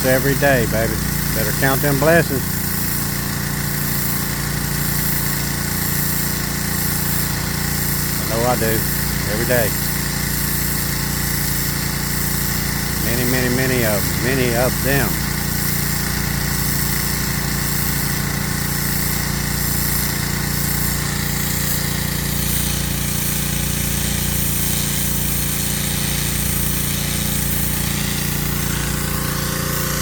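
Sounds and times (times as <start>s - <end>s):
pressure washer hiss: 0.0s - 30.0s
small gasoline engine running: 0.0s - 30.0s.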